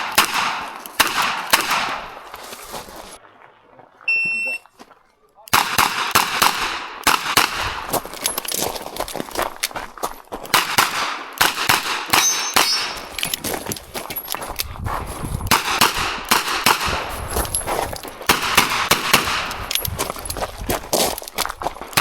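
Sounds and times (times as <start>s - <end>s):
metallic clangs from steel targets: 11.7s - 14.4s.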